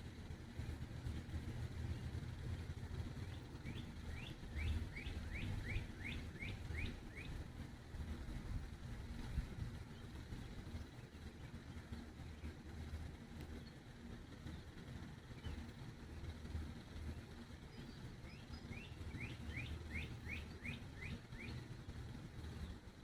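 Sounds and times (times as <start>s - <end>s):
songbird singing: 1.6s - 7.4s, 17.6s - 22.8s.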